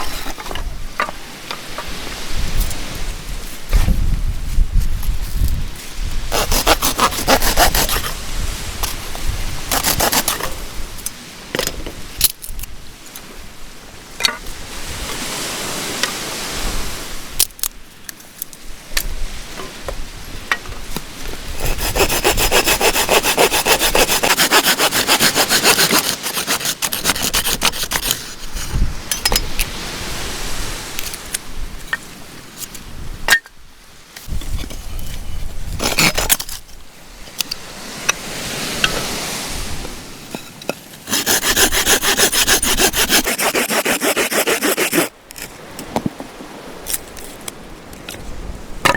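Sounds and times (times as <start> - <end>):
hand saw cutting wood: 6.3 - 8.2, 8.8 - 10.6, 21.6 - 28.8, 35.8 - 36.6, 41.0 - 45.1.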